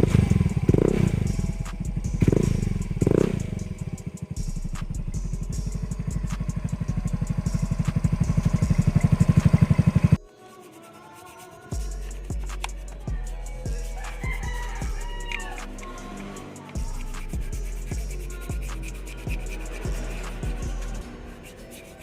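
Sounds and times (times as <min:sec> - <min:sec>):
small motorcycle engine running: 0:00.0 - 0:10.2.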